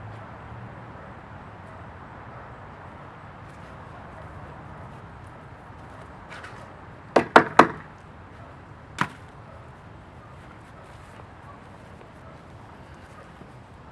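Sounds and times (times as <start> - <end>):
sharp knocks: 7.2 - 7.9, 9.0 - 9.2.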